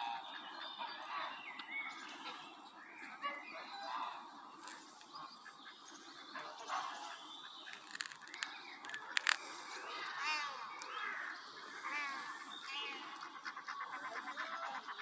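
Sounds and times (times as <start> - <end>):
birds calling: 0.0 - 15.0
sharp clicks: 7.7 - 9.5.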